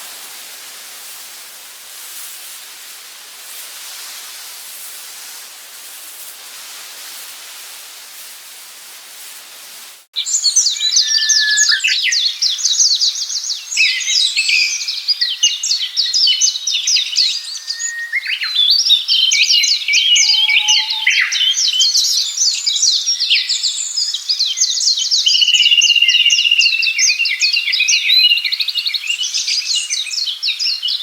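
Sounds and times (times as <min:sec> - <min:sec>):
songbirds singing: 0:10.2 - 0:31.0.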